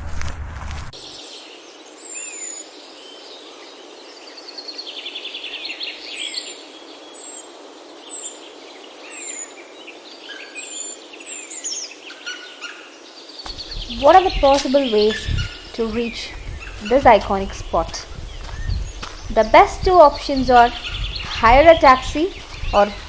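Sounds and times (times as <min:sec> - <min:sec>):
songbirds whistling and trilling: 0:01.0 - 0:17.1, 0:18.1 - 0:19.4, 0:20.5 - 0:23.0
steady background hiss: 0:01.0 - 0:23.0.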